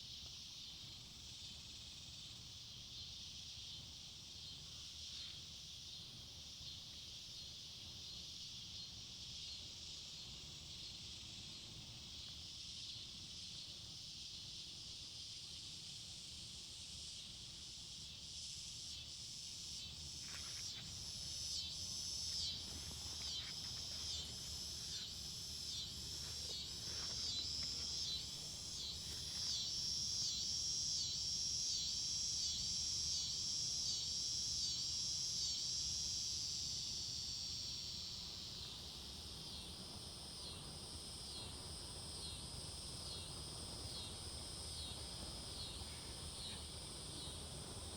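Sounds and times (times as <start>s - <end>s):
insects buzzing: 0.0s - 47.9s
pulsing insect chorus: 0.0s - 47.9s.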